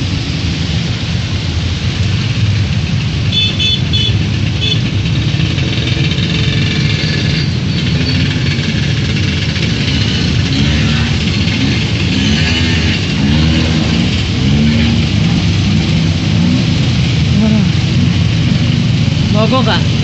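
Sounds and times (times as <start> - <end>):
motorcycle and car engines: 0.0 - 20.0
rain and water wash: 0.0 - 20.0
engine revving: 4.8 - 20.0.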